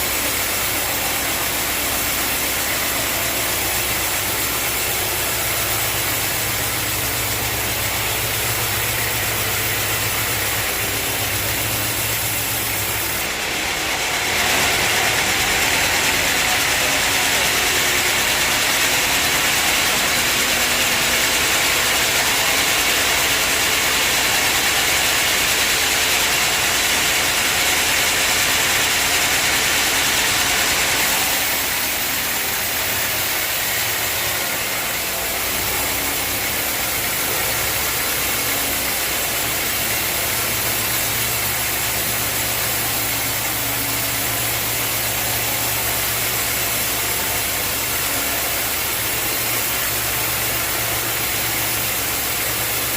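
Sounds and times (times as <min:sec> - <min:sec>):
saw hissing: 0:00.0 - 0:13.4
low mechanical hum: 0:00.0 - 0:52.9.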